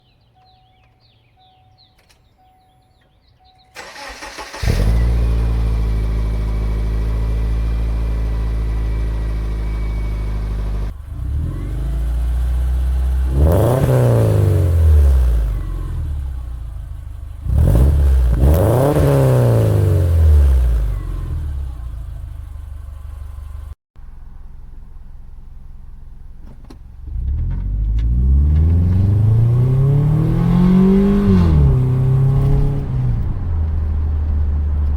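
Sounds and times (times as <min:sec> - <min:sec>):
car engine idling: 0:03.5 - 0:19.3, 0:20.0 - 0:28.2
car engine revving: 0:03.8 - 0:23.7, 0:27.0 - 0:34.9.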